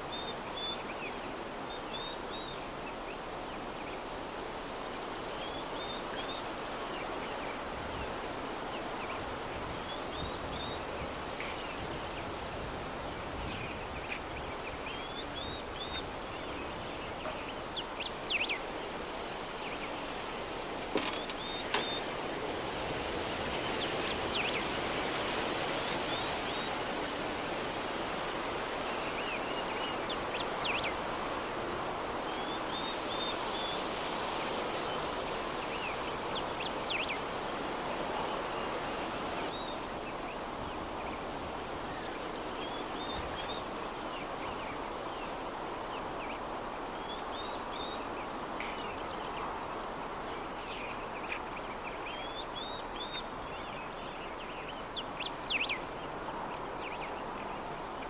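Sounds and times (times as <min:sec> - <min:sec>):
soft breeze: 0:00.0 - 0:58.0
birds chirping: 0:13.4 - 0:22.6.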